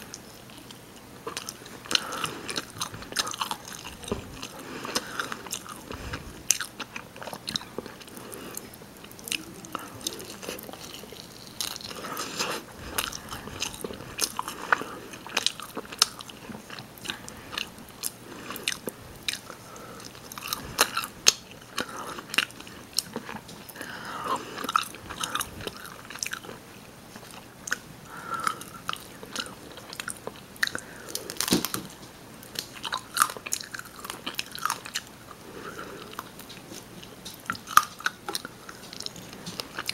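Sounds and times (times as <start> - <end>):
person biting and chewing chicken: 0.1 - 26.6, 27.2 - 31.9.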